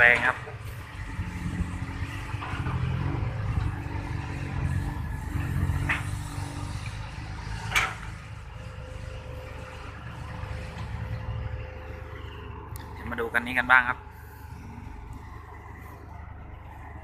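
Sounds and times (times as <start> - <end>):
truck diesel engine pulling: 0.0 - 17.0.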